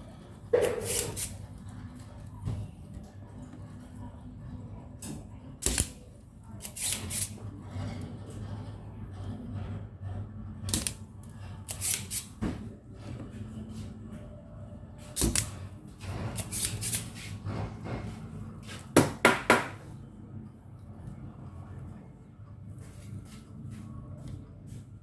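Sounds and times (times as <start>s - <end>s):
steady low hum: 0.0s - 25.0s
tools clicking and knocking: 10.7s - 11.0s.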